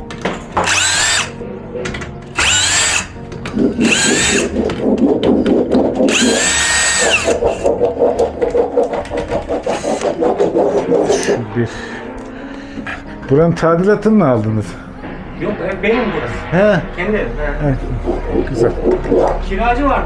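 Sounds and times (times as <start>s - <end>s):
cordless drill motor whine: 0.6s - 1.3s, 2.4s - 3.1s, 3.8s - 4.5s, 6.1s - 7.7s.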